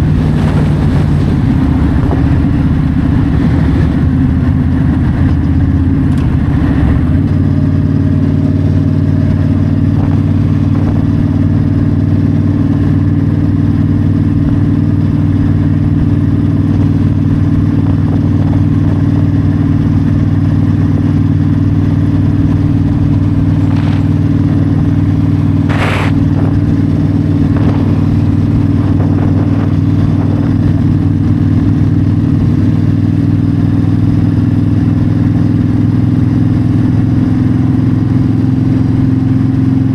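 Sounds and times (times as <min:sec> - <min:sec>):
motorcycle engine cruising: 0:00.0 - 0:39.9
brief hiss: 0:25.7 - 0:26.2.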